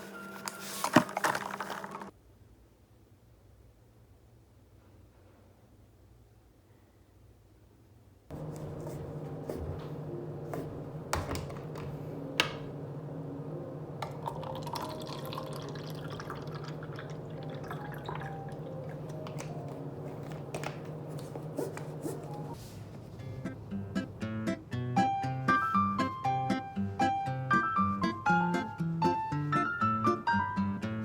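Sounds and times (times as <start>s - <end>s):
steady low hum: 8.3s - 24.4s
water trickling and dripping: 14.0s - 19.5s.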